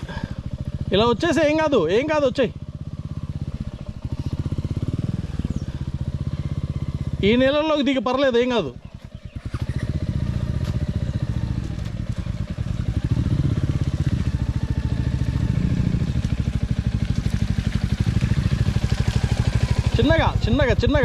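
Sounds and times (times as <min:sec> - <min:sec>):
motorcycle engine at low revs: 0:00.0 - 0:21.0.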